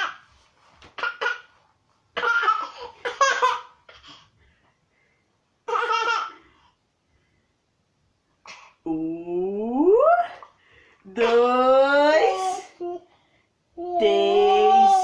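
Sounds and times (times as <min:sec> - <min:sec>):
baby laughing: 0:02.2 - 0:03.8, 0:05.6 - 0:06.4.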